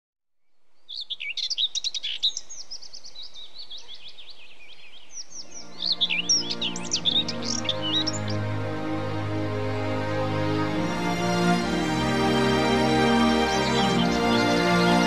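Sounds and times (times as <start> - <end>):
songbirds chirping and twittering: 0.4 - 15.0
soft sustained music chords: 2.9 - 15.0.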